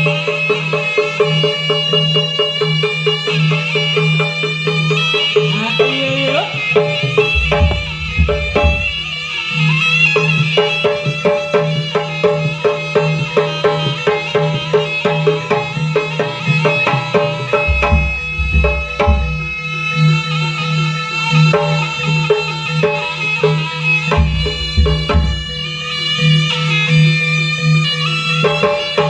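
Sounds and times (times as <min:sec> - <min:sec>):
reedy melody: 0:05.4 - 0:09.4, 0:17.6 - 0:19.6, 0:24.1 - 0:26.4
drum and gong-chime strokes: 0:07.0 - 0:09.2, 0:17.6 - 0:19.6, 0:24.1 - 0:25.9
deep bass thumps: 0:07.4 - 0:09.1, 0:17.7 - 0:19.4, 0:24.2 - 0:25.6.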